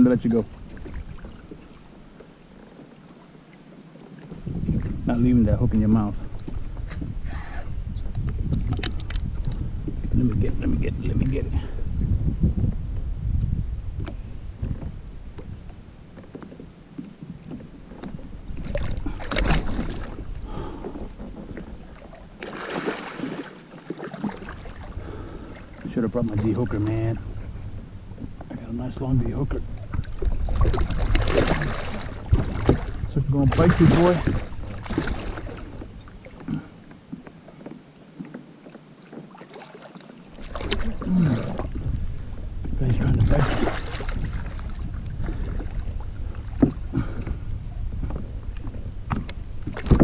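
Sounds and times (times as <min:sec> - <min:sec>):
water splashing against kayak: 0:00.0 - 0:50.0
knocks against kayak hull: 0:46.6 - 0:47.4.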